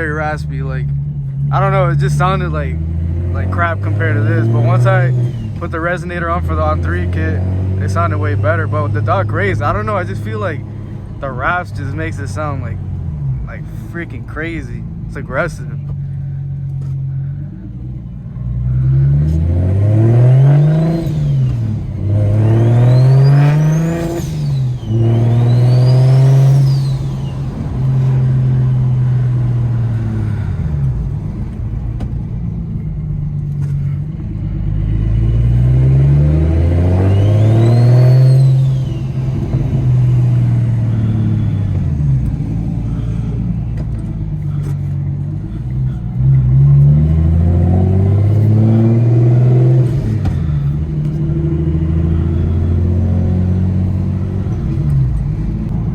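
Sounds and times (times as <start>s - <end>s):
car engine accelerating: 0.0s - 55.9s
turbo whine: 20.4s - 34.0s, 36.6s - 44.8s.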